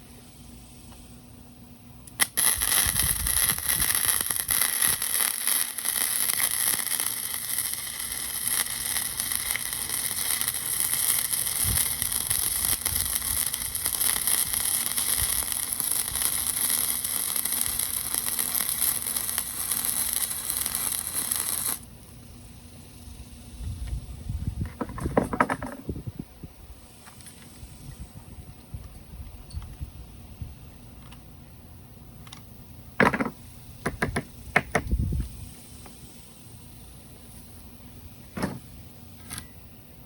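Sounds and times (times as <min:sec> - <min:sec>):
arc welding crackle: 0:02.0 - 0:24.2.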